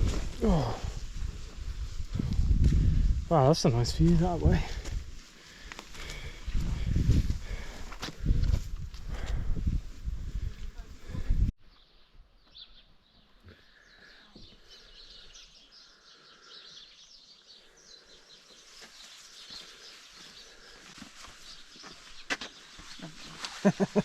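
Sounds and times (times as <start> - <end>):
birds chirping and singing: 11.7 - 23.4.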